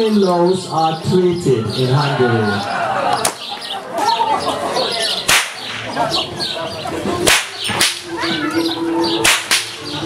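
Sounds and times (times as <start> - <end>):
whip cracking: 5.2 - 6.0, 7.2 - 8.2, 9.2 - 9.9.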